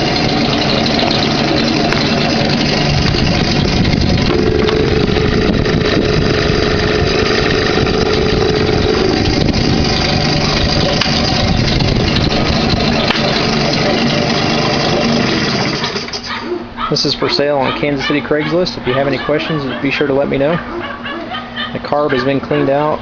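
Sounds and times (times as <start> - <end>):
two-stroke outboard motor running: 0.0 - 16.3.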